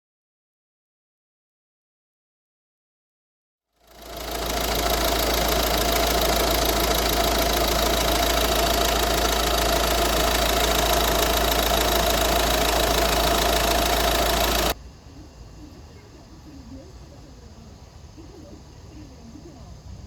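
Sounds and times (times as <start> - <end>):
car engine idling: 3.8 - 14.8.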